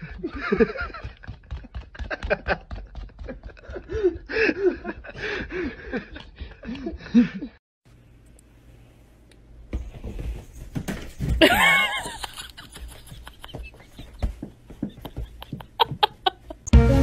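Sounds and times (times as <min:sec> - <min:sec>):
person laughing: 0:00.0 - 0:07.6, 0:11.4 - 0:16.7.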